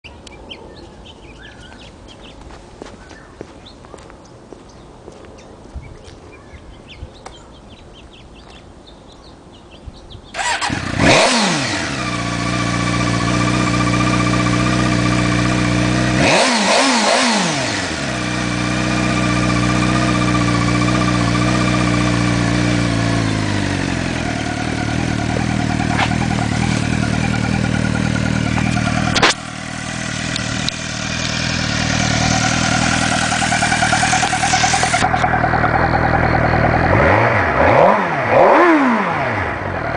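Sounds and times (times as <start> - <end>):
motorcycle engine revving and idling: 10.3 - 39.9
high buzzing: 21.8 - 38.1.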